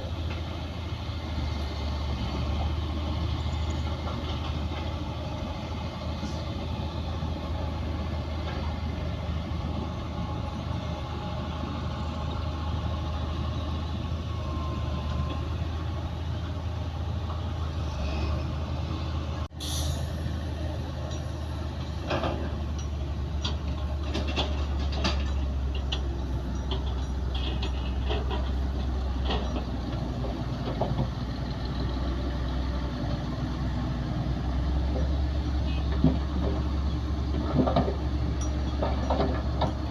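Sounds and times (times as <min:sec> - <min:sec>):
heavy diesel machinery droning: 0:00.0 - 0:39.9
metallic clanks and knocks: 0:22.0 - 0:31.2, 0:35.7 - 0:39.9.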